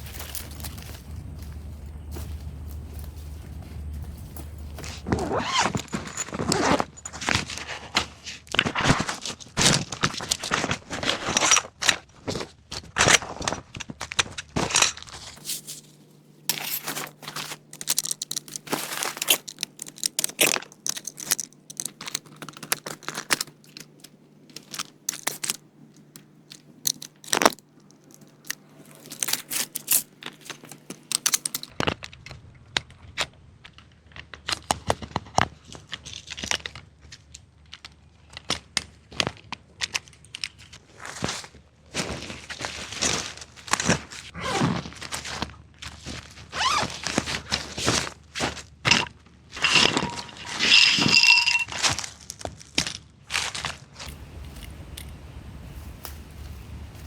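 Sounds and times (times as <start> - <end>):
gear handling clicks and knocks: 0.0 - 12.0, 14.2 - 31.8, 48.9 - 51.9
crinkling and rustling: 0.0 - 31.8, 34.4 - 57.0.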